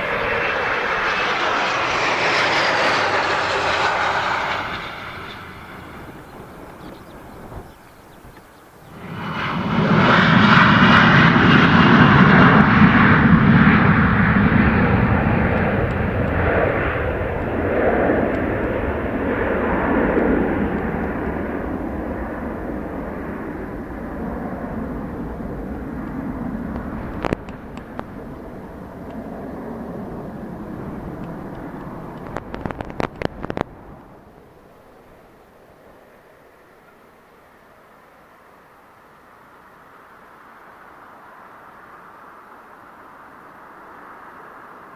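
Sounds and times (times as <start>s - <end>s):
jet engines roaring past: 0.0s - 44.9s.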